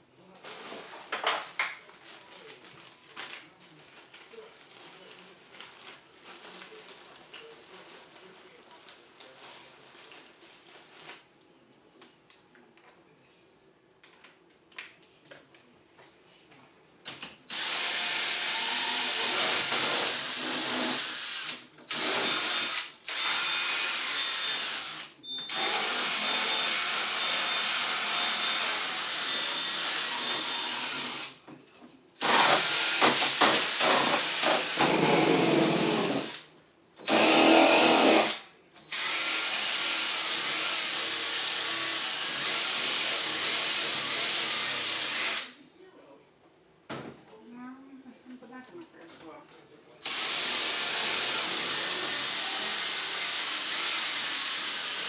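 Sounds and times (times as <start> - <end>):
power drill scrub brush scrubbing: 17.5 - 31.3, 32.2 - 36.4, 37.0 - 45.4.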